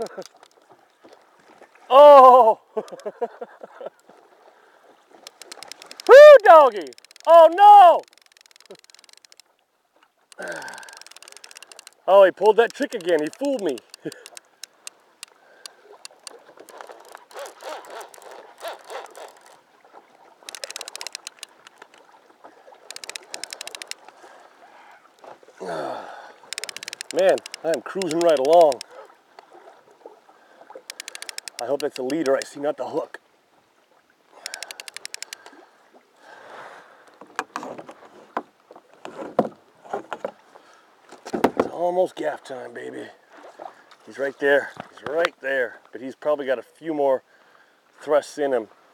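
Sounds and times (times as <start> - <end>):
water sloshing against hull: 0.0 - 1.9, 2.6 - 7.3, 8.1 - 45.9
fishing reel clicking: 5.2 - 9.5, 10.3 - 19.6, 20.4 - 22.1, 22.8 - 24.2, 26.5 - 28.9, 30.9 - 32.6, 34.4 - 35.6.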